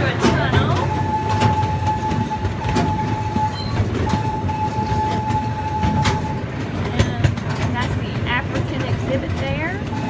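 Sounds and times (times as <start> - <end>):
train wheels rumbling on track: 0.0 - 10.0
wheels clicking over rail joints: 0.0 - 10.0
high wheel squeal: 0.4 - 6.6.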